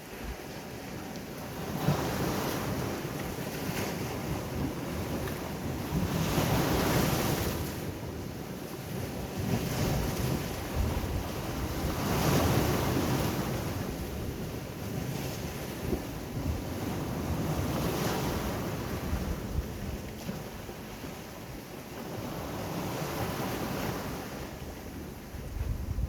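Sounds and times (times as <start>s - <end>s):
sea waves breaking: 0.0s - 8.1s, 8.8s - 21.4s
wind buffeting the microphone: 1.4s - 26.0s.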